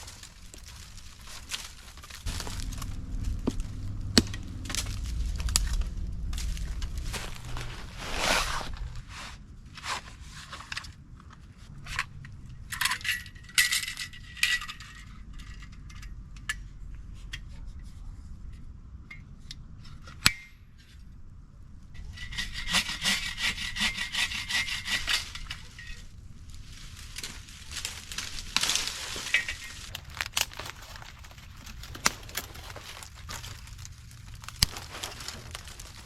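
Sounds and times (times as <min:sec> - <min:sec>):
hand saw cutting wood: 0:22.2 - 0:25.7.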